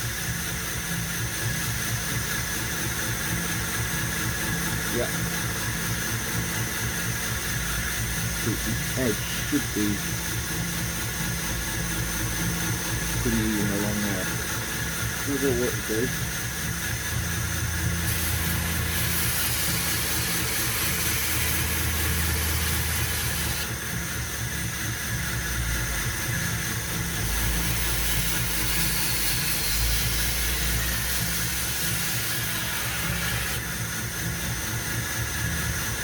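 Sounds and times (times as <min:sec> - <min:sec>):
belt grinder running: 0:00.0 - 0:36.0
knife blade grinding hiss: 0:18.0 - 0:23.7, 0:27.3 - 0:33.6.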